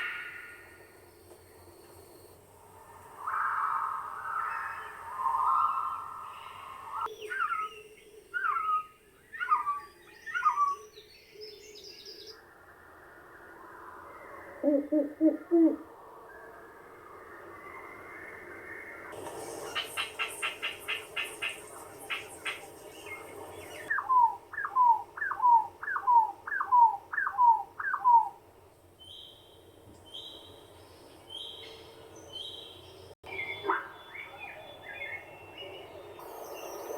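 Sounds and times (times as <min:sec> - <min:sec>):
bird calling with descending notes: 0:03.2 - 0:12.3, 0:19.7 - 0:28.4.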